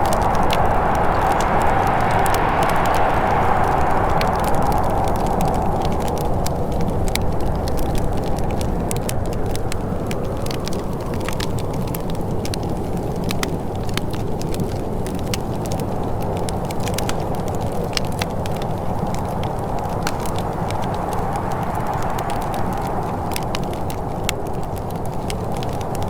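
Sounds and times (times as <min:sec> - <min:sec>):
low rushing noise: 0:00.0 - 0:12.0, 0:19.6 - 0:24.3
wood fire crackling: 0:00.0 - 0:26.0.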